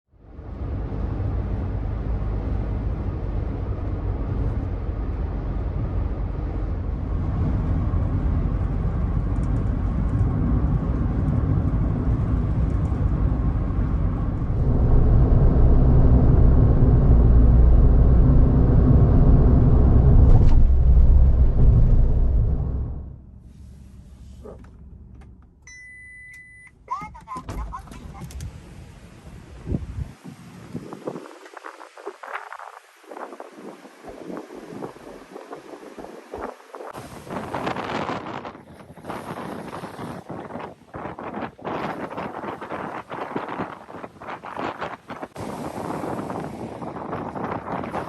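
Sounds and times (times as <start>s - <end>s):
road noise: 0.1s - 48.0s
car engine while driving: 0.2s - 29.1s.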